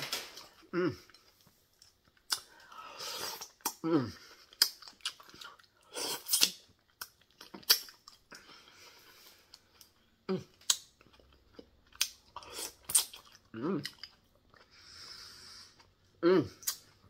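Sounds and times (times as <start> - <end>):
wet chewing and lip smacking: 1.1 - 14.7.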